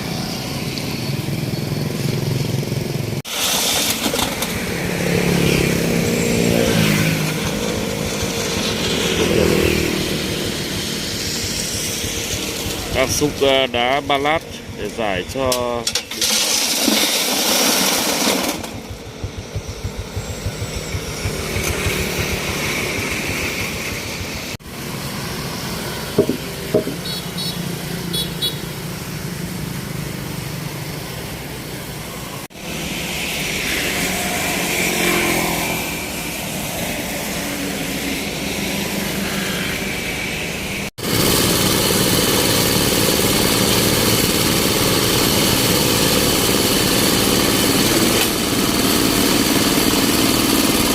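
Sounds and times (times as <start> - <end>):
excavator engine running: 0.0 - 50.9
excavator scooping stone: 3.3 - 5.4, 15.8 - 19.0
sharp knocks: 26.2 - 27.1.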